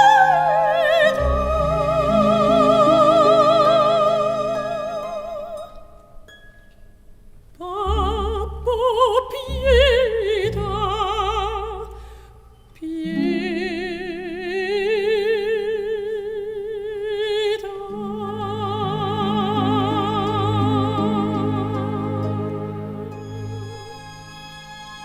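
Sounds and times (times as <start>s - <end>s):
operatic solo singing: 0.0s - 6.1s, 12.8s - 24.4s
low sustained accompaniment: 0.0s - 6.4s, 7.7s - 12.0s, 17.8s - 25.0s.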